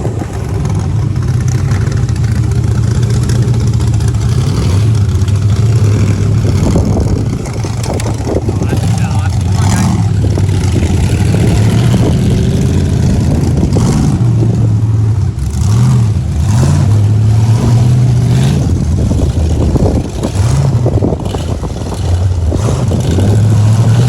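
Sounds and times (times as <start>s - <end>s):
engine revving in bursts: 0.0s - 24.0s.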